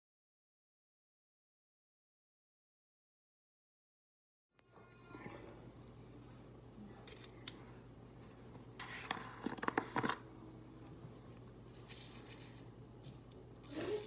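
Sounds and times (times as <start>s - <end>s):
steady low hum: 4.6s - 14.0s.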